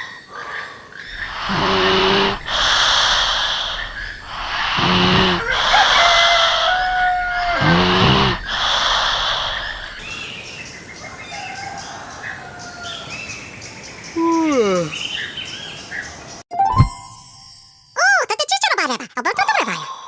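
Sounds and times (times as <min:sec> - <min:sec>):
falling-pitch bird calls: 0:01.1 - 0:10.4
birds chirping and whistling: 0:01.1 - 0:12.0.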